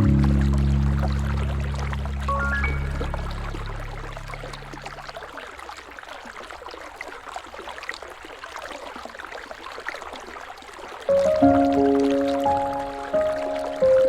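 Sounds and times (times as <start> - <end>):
low music tones: 0.0 - 5.1, 11.1 - 14.0
river water flowing: 0.0 - 14.0.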